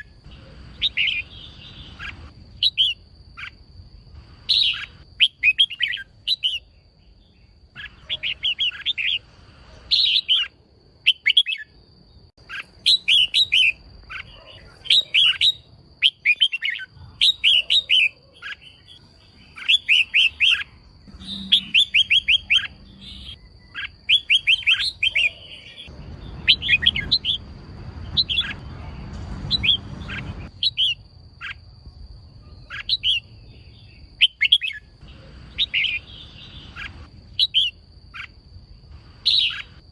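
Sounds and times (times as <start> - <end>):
bulbul chirping: 12.4 - 28.8, 39.2 - 39.9
faint high-pitched tone: 20.8 - 23.8
low rumble: 25.9 - 30.6.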